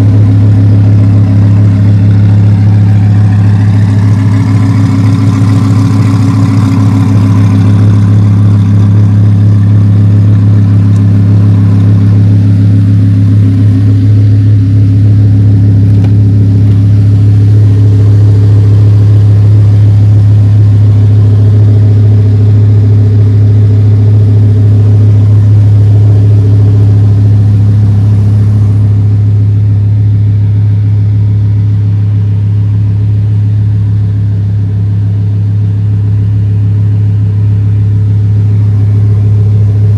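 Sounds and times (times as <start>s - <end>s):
car engine running steadily: 0.0s - 39.9s.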